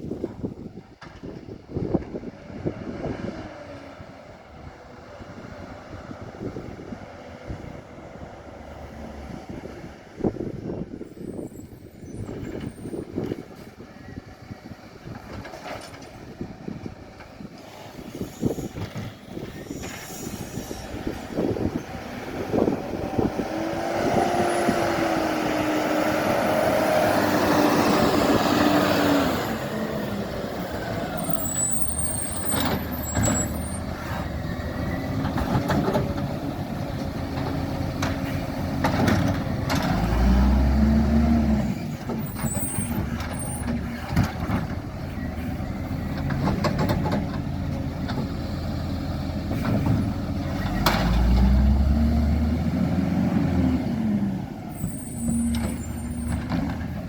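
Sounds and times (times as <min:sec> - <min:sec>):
knocks and clatters: 0:37.0 - 0:40.1, 0:46.1 - 0:48.3.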